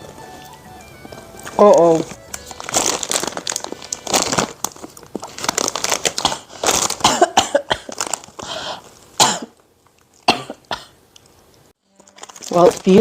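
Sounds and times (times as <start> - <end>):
woman coughing: 6.2 - 8.0, 9.2 - 9.6, 10.3 - 11.0.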